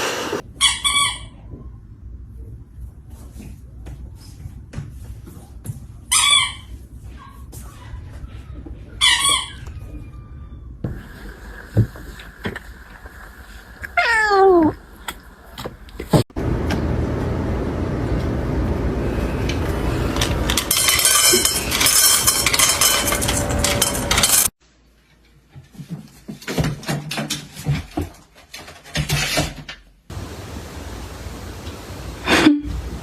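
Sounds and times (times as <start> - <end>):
cat meowing: 13.8 - 14.8
rushing noise with clattering: 16.0 - 24.5.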